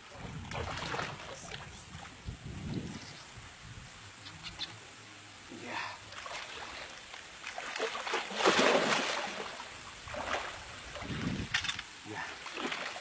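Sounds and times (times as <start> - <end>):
water splashing and sloshing: 0.0 - 3.2, 6.0 - 13.0.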